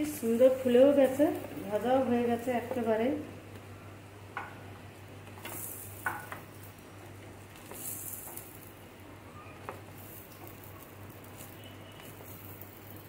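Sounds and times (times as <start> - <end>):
food sizzling in oil: 5.2 - 13.0.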